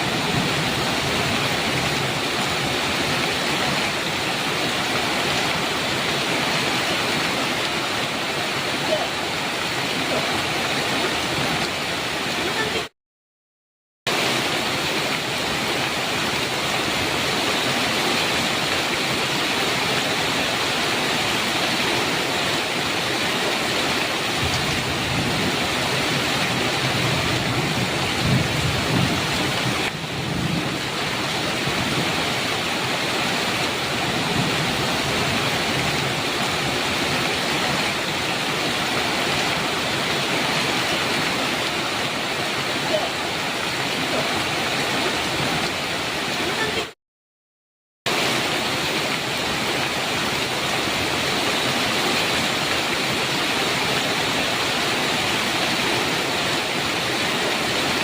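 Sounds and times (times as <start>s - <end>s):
thunder rumble: 24.4s - 32.2s.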